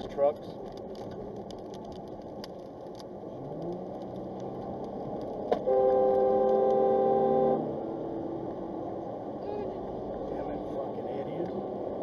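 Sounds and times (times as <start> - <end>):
road and engine noise inside vehicle: 0.0 - 12.0
long vehicle horn honk: 5.6 - 7.7.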